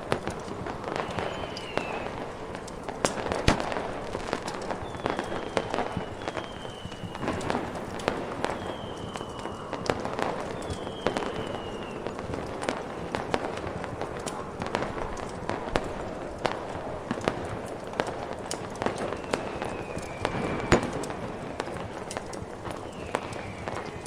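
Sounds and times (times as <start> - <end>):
firework pops and crackles: 0.0 - 24.0
firework whistles: 0.2 - 13.5, 18.4 - 24.0.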